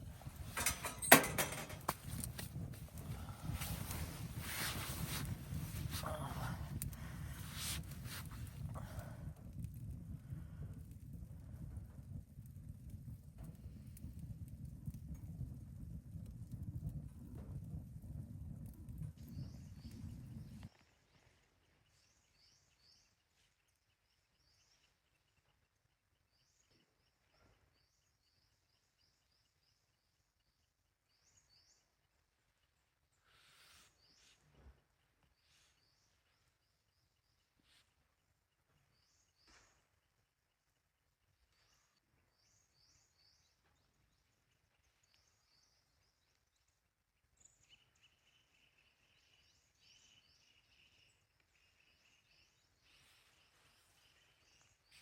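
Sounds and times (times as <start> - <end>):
lower steady bird call: 19.2 - 55.0.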